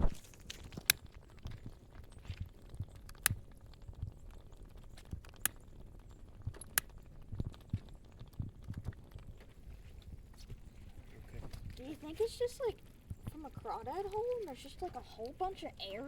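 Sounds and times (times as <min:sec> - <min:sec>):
gas bubbles popping in water: 0:00.9 - 0:10.8.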